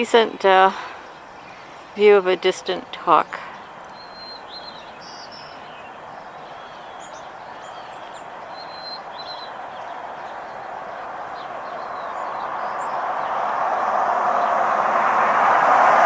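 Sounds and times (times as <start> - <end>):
small birds chirping: 0.0 - 14.8
vehicle approaching: 8.1 - 16.0.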